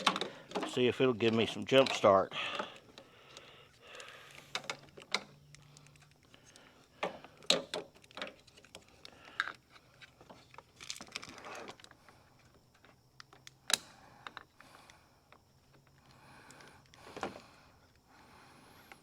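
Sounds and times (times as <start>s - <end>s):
cable clamps clicking and clattering: 0.0s - 3.1s.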